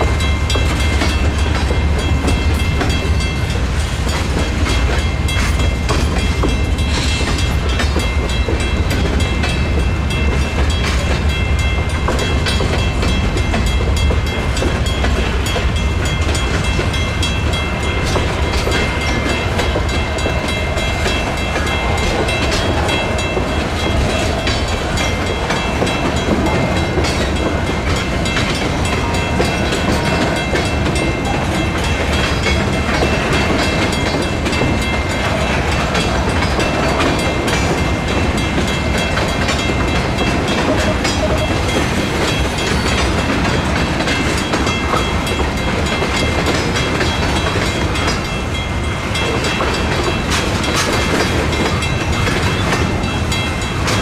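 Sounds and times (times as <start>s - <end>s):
crossing bell ringing: 0.0s - 54.0s
freight train rolling: 0.0s - 54.0s.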